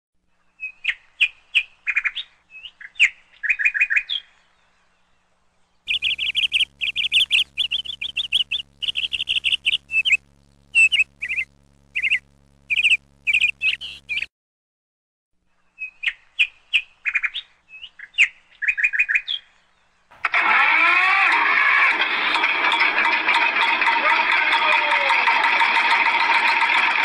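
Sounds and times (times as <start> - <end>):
small birds chirping: 0.5 - 14.3, 15.7 - 20.0
faint steady hum: 4.4 - 14.3.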